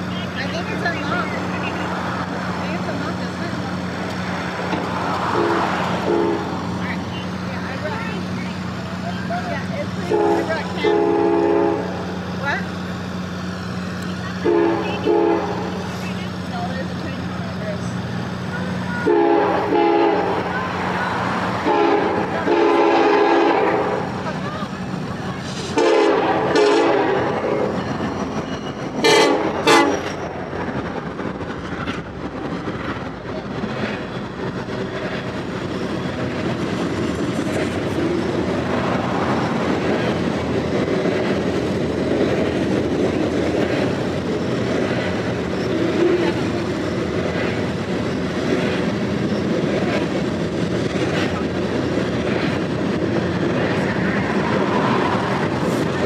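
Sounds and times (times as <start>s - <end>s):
wheels clicking on rails: 0.0s - 10.9s, 11.9s - 22.5s, 23.8s - 56.0s
freight cars rumbling past: 0.0s - 56.0s
locomotive horn blasts: 5.2s - 6.6s, 10.1s - 12.0s, 14.4s - 15.8s, 19.0s - 20.5s, 21.6s - 24.1s, 25.7s - 27.5s, 29.0s - 30.1s.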